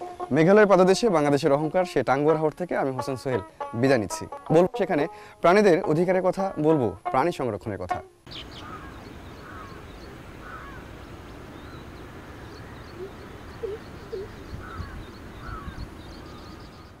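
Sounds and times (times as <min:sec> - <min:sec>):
steady background hiss: 0:00.0 - 0:17.0
birds calling: 0:08.3 - 0:17.0.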